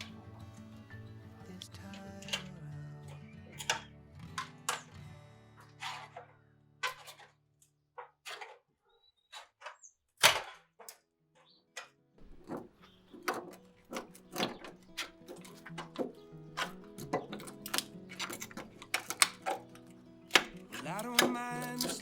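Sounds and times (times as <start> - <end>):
song playing: 0.1 - 4.3, 20.5 - 22.0.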